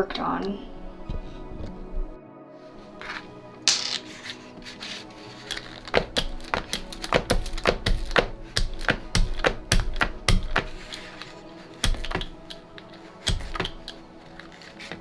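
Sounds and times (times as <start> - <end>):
faint background music: 0.0 - 15.0
stamp tapping on ink pad: 11.8 - 12.6.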